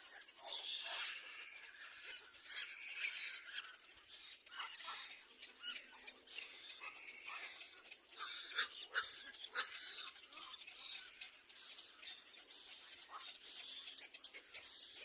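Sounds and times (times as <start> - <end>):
nestling birds squeaking: 0.0 - 15.0
sharp bird cries: 6.5 - 10.2.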